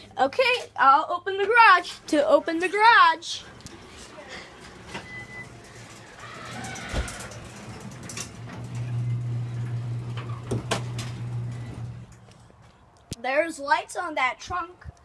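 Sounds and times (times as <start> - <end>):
garage door opener motor hum: 4.6 - 12.2
garage door clicks: 4.8 - 12.2.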